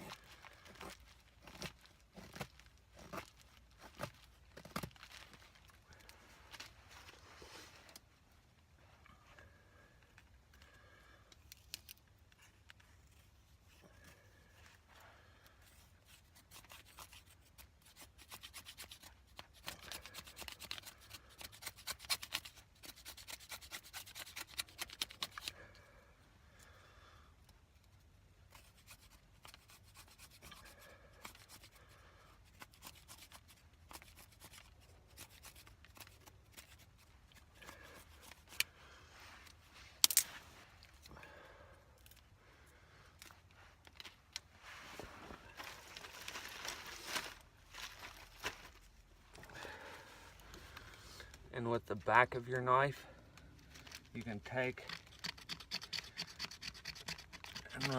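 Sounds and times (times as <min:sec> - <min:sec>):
knife scraping a stick: 0:15.8 - 0:25.6, 0:28.5 - 0:41.1, 0:54.2 - 0:57.9.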